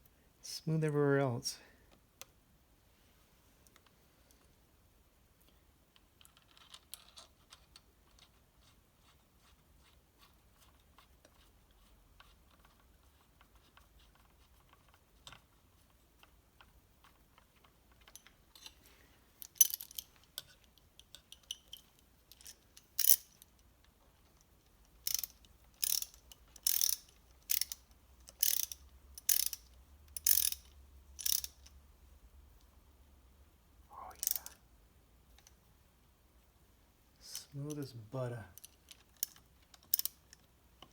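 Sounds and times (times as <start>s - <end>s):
ratchet wrench clicking: 19.4s - 20.0s, 22.3s - 23.4s, 25.0s - 31.7s, 34.2s - 34.6s, 38.6s - 40.2s.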